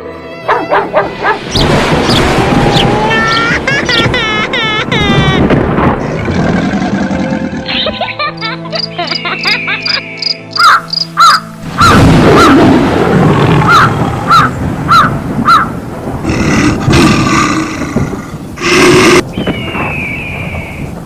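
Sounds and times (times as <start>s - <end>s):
loud rushing roar: 1.0s - 4.1s, 11.6s - 21.0s.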